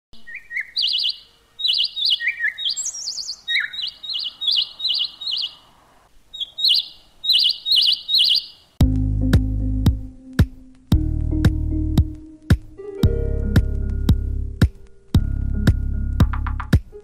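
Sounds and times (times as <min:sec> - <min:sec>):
bird chirping: 0:00.2 - 0:08.8
electronic music with a beat: 0:08.8 - 0:17.0.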